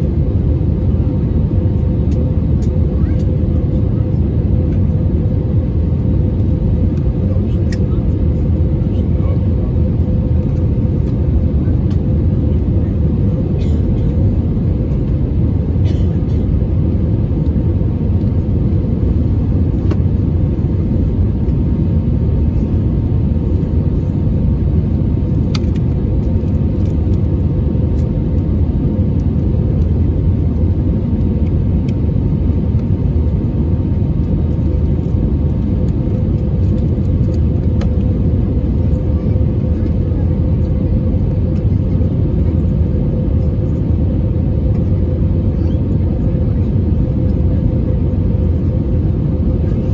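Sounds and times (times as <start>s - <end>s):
aircraft cabin engine rumble: 0.0s - 49.9s.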